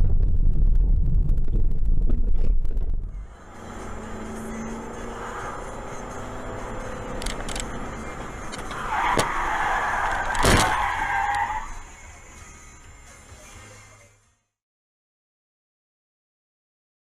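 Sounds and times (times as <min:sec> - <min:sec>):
car tyres screeching: 0:03.1 - 0:12.1
vehicle collision impacts: 0:07.2 - 0:11.4.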